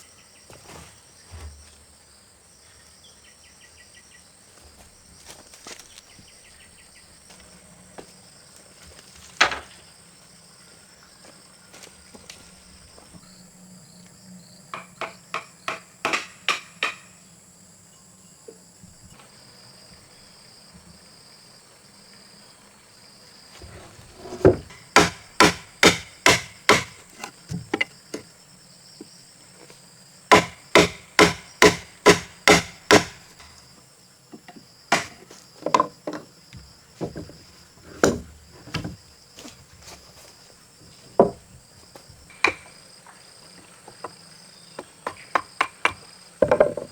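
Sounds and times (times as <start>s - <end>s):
insects buzzing: 0.0s - 46.9s
hard blows on wooden timber: 23.6s - 27.9s, 30.3s - 33.6s.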